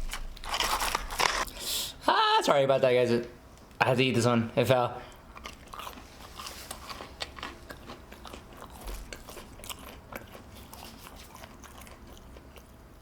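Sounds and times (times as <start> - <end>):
person chewing food: 5.1 - 13.0.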